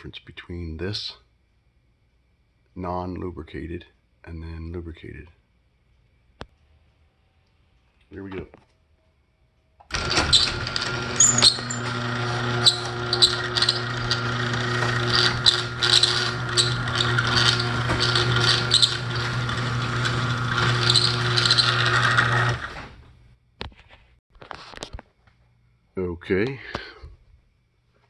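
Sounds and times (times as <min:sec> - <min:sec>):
garage door motor hum: 0:09.8 - 0:23.2
door hardware rattling and squeaking: 0:09.9 - 0:22.7.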